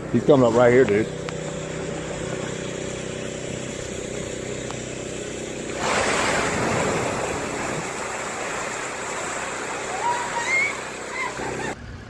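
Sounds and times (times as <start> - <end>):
boat engine idling: 0.0 - 11.8
loud rush of water: 5.7 - 11.8.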